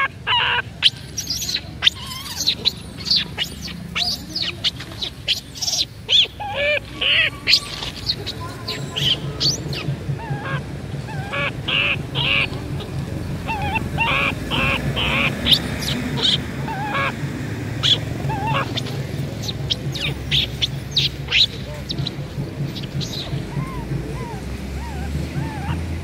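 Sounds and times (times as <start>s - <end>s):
birds calling: 0.0s - 26.0s
steady low hum: 0.0s - 26.0s
sharp high bird chirps: 0.8s - 10.4s, 13.4s - 23.9s.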